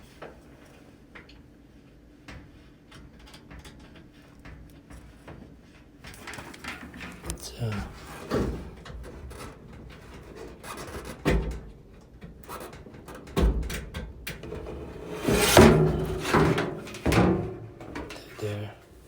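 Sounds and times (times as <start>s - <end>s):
knocks and rattles on sheet metal: 8.1s - 18.2s.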